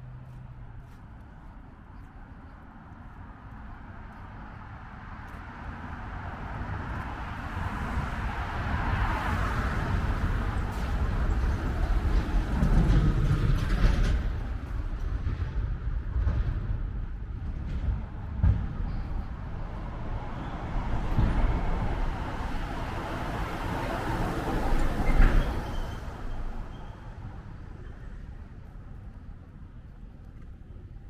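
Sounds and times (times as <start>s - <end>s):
vehicle passing: 17.8s - 26.7s.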